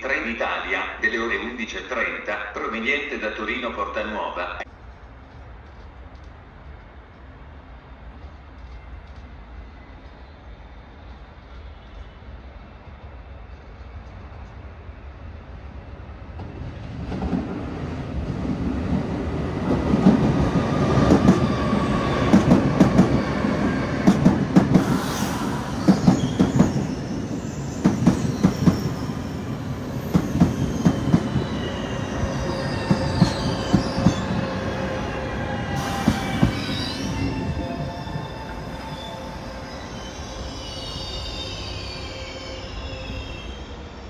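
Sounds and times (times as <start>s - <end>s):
train pulling in: 0.0s - 44.0s
wheel and brake squeal: 24.8s - 44.0s.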